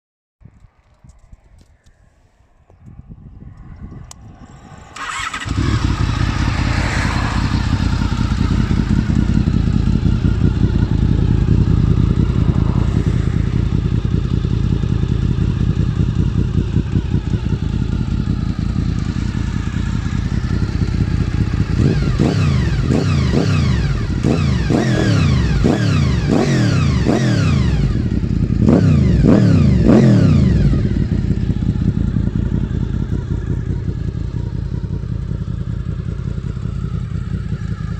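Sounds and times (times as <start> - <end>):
motorcycle engine idling and revving: 2.6 - 37.9.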